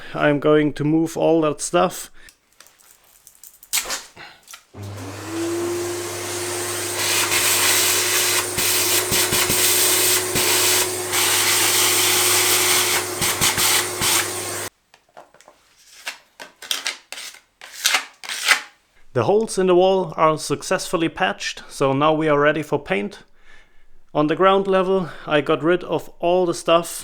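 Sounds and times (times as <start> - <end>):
vacuum cleaner motor running: 4.8 - 14.7.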